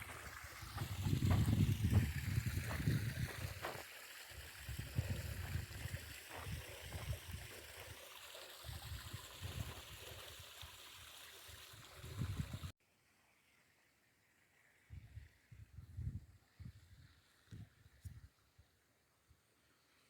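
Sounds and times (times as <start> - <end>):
wind buffeting microphone: 0.2 - 3.8, 4.4 - 7.6, 8.7 - 10.3, 11.9 - 12.7, 15.0 - 17.0.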